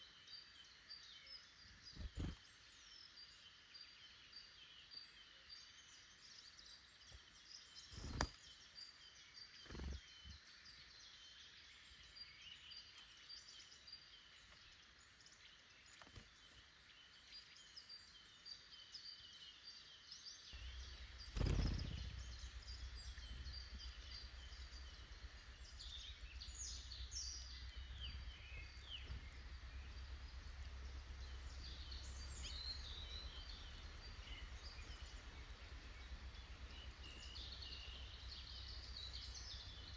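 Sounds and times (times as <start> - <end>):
songbirds chirping: 0.0 - 39.9
low rumble: 20.6 - 39.9.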